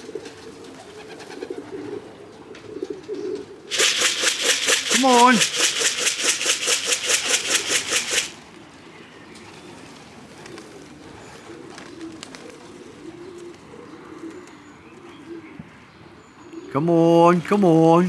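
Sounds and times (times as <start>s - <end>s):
pigeons cooing: 0.0s - 3.6s
quick shaken rattle: 3.7s - 8.4s.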